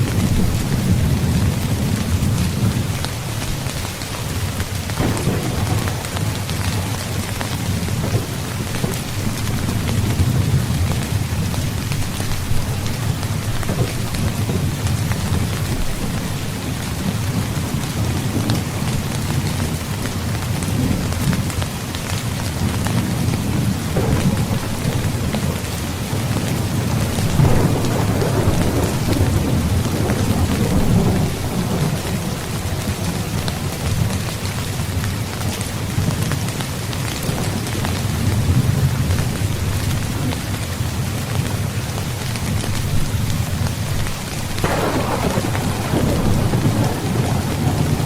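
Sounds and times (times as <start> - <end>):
heavy rain: 0.0 - 48.0
rolling thunder: 4.9 - 34.3, 42.6 - 48.0.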